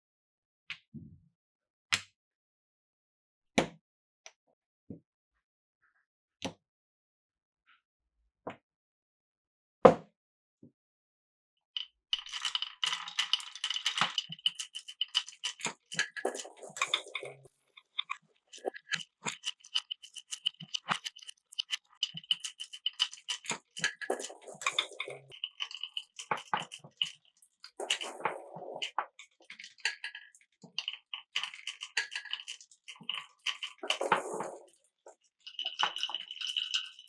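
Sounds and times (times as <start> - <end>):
marbles clattering on wooden track: 12.1 - 37.0.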